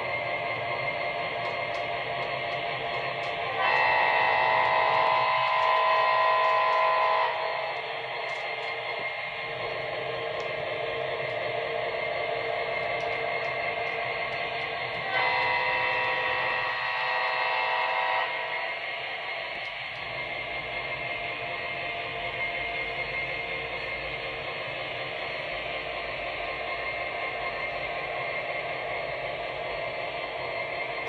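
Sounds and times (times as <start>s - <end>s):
train running noise: 0.0s - 31.0s
train horn blasts: 3.2s - 8.4s, 14.4s - 18.8s.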